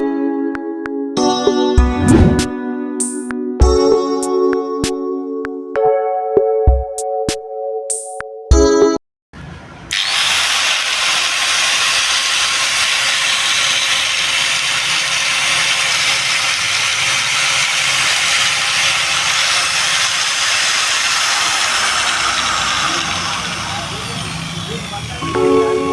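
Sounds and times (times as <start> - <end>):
angle grinder running: 9.9 - 25.9.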